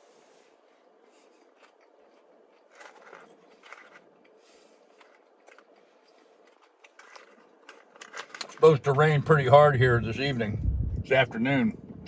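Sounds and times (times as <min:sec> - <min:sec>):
person chewing fries: 0:00.9 - 0:07.6.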